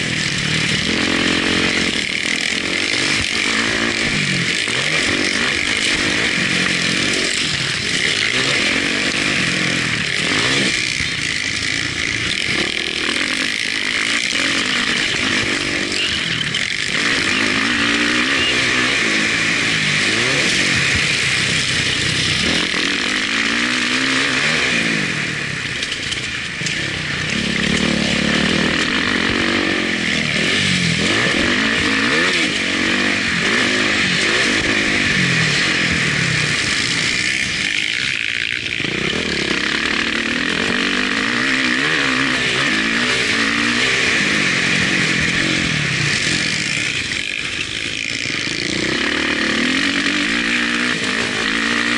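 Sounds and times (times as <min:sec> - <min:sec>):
motocross bike engine revving: 0:00.0 - 0:51.9.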